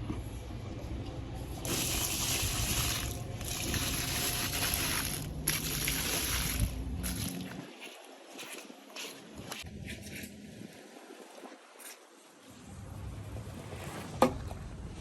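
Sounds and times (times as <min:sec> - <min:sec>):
steady low hum: 0:00.0 - 0:07.7
water spraying onto door mat: 0:01.6 - 0:07.5.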